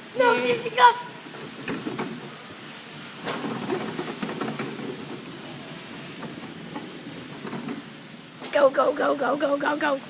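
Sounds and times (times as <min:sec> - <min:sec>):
cart rattling over hard floor: 0:01.1 - 0:08.2.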